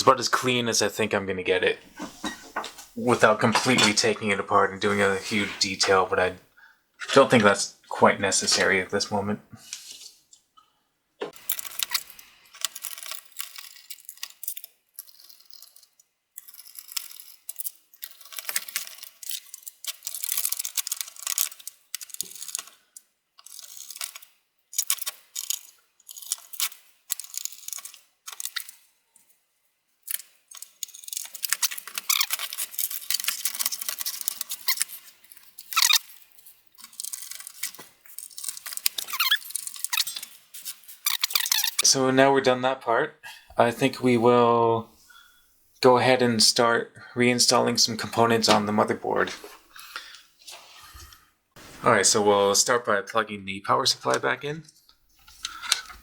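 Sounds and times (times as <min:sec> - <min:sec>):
metal and plastic parts rattling: 0:01.9 - 0:04.1, 0:11.2 - 0:29.4, 0:30.0 - 0:41.8, 0:55.2 - 0:56.0.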